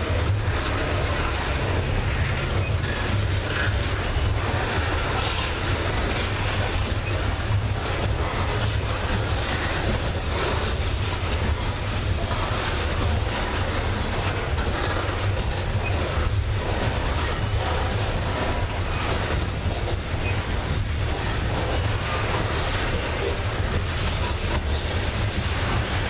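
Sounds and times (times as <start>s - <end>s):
freight train rumble: 0.0s - 26.0s
rail noise: 0.0s - 26.0s.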